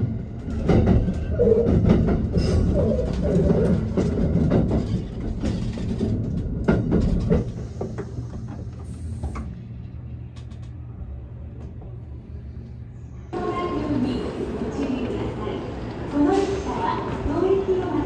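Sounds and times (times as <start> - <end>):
train running noise: 0.0 - 18.0
wheels clicking over rail joints: 0.3 - 9.5.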